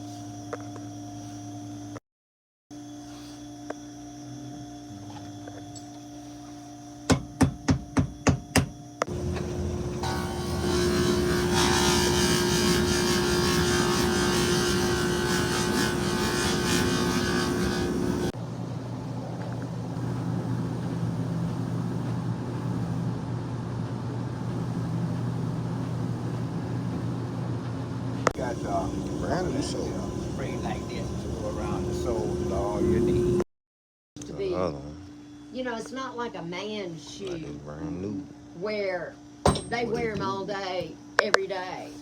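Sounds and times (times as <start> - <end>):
low steady hum: 9.0 - 33.4
machine motor whirring hiss: 9.1 - 18.4, 28.4 - 33.4.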